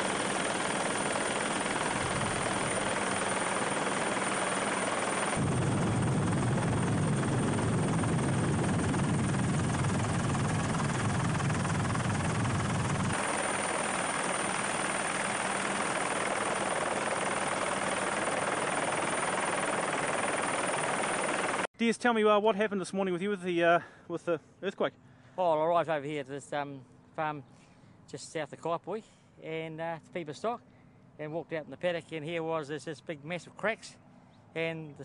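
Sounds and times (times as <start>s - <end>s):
helicopter drone: 0.0s - 21.7s.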